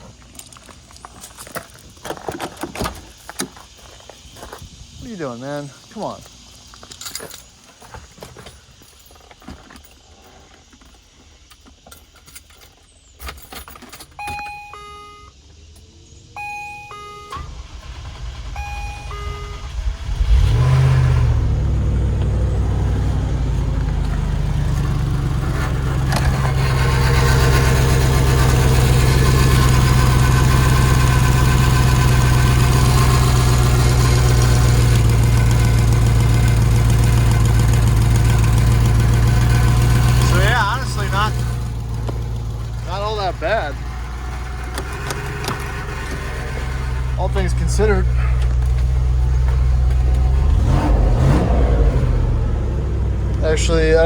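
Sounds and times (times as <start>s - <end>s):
warning chime beeps: 14.2s - 15.3s, 16.3s - 17.7s, 18.4s - 19.8s
car engine idling: 16.4s - 54.0s
starter motor cranking: 44.4s - 48.8s.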